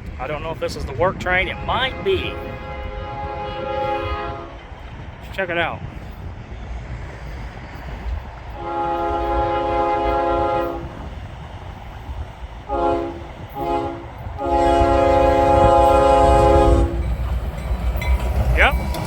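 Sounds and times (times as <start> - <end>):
low rumble of train engine: 0.0 - 19.0
locomotive air horn blasts: 1.3 - 4.6, 8.5 - 11.0, 12.7 - 17.1.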